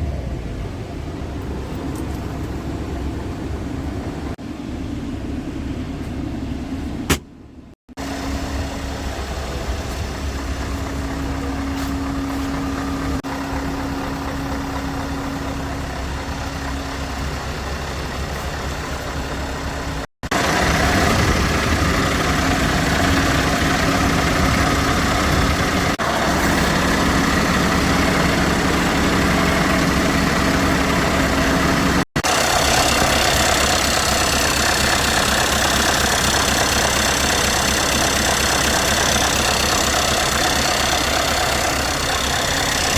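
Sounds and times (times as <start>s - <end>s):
diesel engine idling: 7.9s - 42.9s
high-pitched engine clatter: 12.5s - 42.9s.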